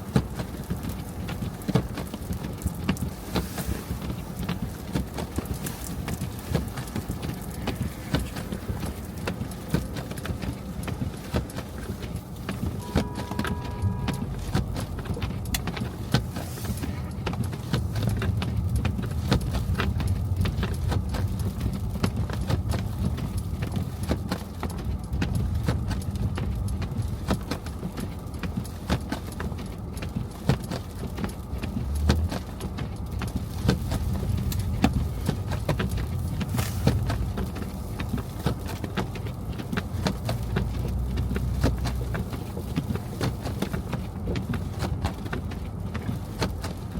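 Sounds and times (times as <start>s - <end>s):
clicks and crackles of snow: 0.0s - 46.9s
low road rumble: 0.0s - 46.9s
short beep: 12.8s - 14.3s.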